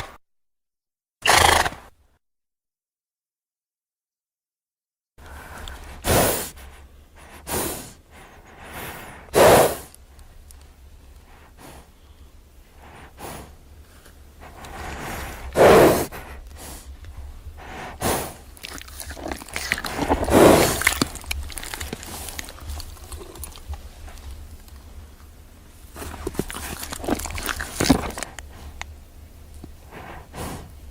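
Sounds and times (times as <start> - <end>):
horse snorting: 1.2 - 1.9, 5.7 - 10.0, 12.8 - 13.6, 14.4 - 17.0, 17.6 - 24.5, 25.9 - 29.0, 29.6 - 30.9.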